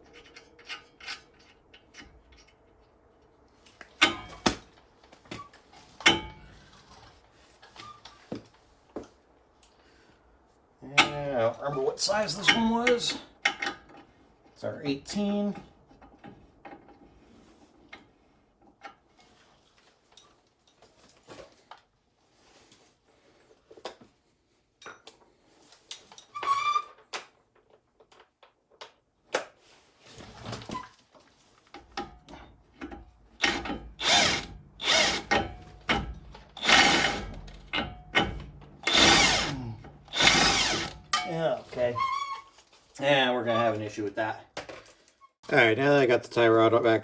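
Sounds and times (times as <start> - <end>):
impact wrench bursts: 33.4 - 41.2.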